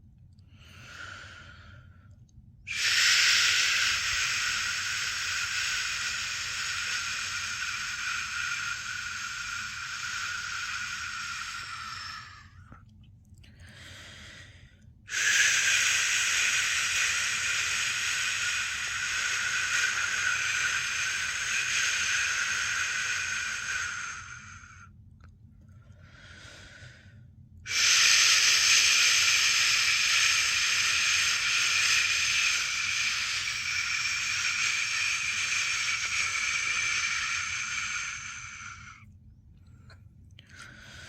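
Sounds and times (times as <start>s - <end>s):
faint breath hiss: 0.0s - 25.0s, 25.7s - 41.0s
person shushing: 2.7s - 12.5s, 27.7s - 39.0s.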